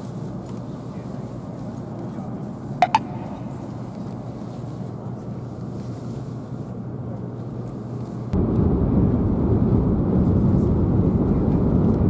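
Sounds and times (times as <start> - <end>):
train rumble inside cabin: 8.3 - 12.0.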